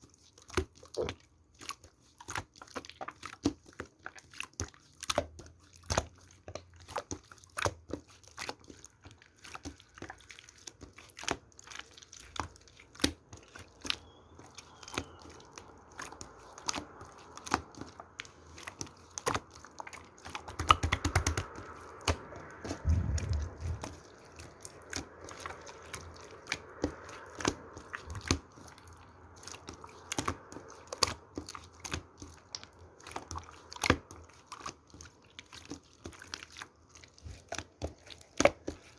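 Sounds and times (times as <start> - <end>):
slime squished by hand: 9.4 - 38.9.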